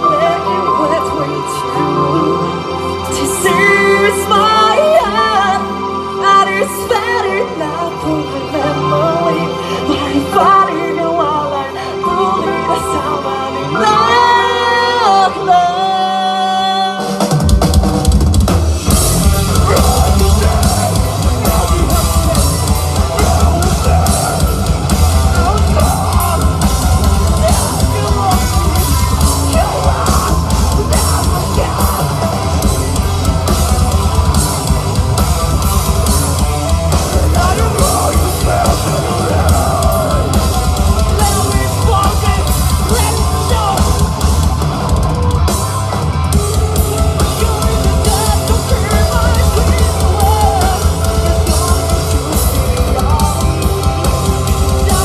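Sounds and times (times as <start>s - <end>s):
guitar: 0.0s - 55.0s
rock band playing live: 0.0s - 55.0s
drum kit beating: 17.0s - 55.0s.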